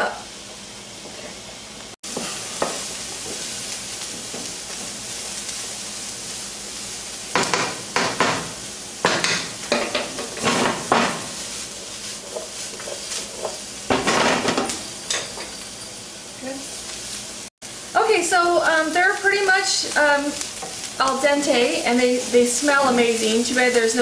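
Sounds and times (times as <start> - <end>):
vegetables sizzling in oil: 0.0 - 24.0
spoon scraping a pan: 9.1 - 15.6.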